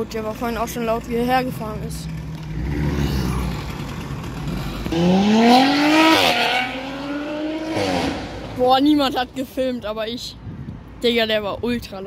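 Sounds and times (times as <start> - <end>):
car engine accelerating hard: 2.2 - 8.6.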